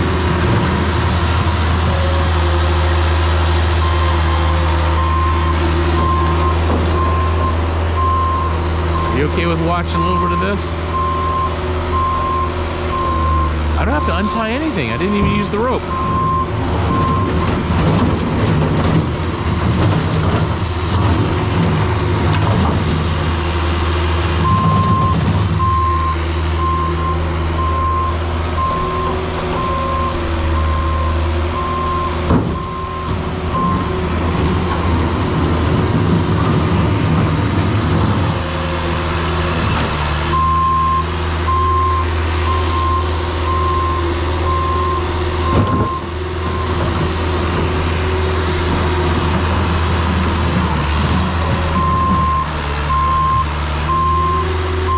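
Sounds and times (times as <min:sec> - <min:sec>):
heavy vehicle engine running: 0:00.0 - 0:54.9
back-up alarm beeping: 0:24.5 - 0:33.9.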